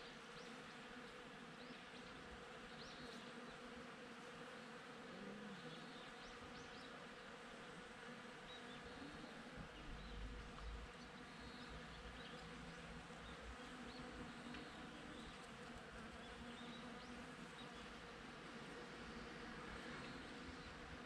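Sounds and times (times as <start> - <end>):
bees buzzing: 0.1 - 21.0.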